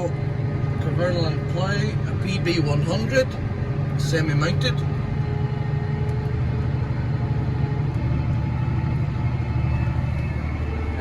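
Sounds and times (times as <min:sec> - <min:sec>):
tractor diesel engine humming: 0:00.0 - 0:11.0.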